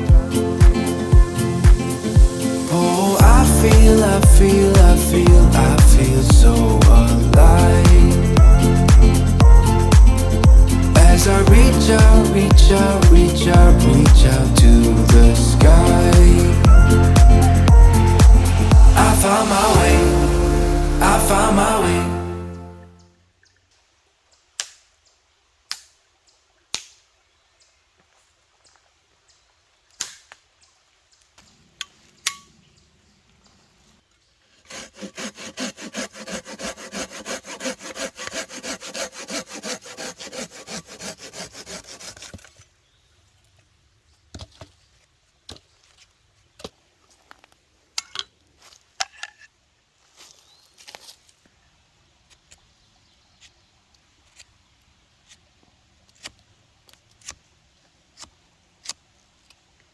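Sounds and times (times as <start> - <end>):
saw cutting through wood: 2.4 - 22.7, 34.6 - 42.4.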